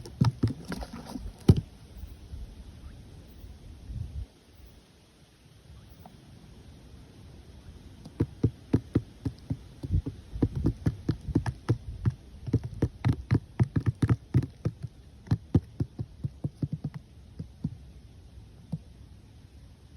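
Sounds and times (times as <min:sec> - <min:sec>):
rapid tapping and knocking: 0:00.0 - 0:00.8, 0:08.0 - 0:17.8.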